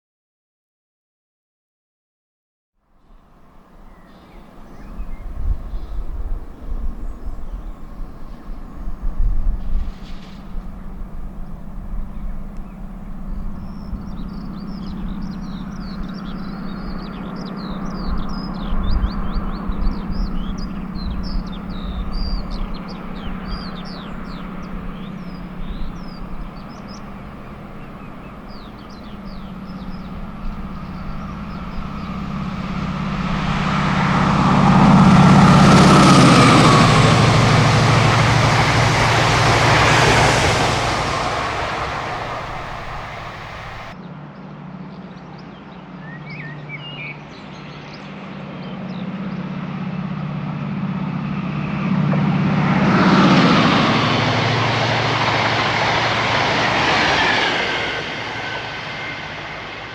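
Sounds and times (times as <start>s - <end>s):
diesel train passing: 3.0s - 44.9s, 47.8s - 59.9s
birds chirping: 13.6s - 44.0s.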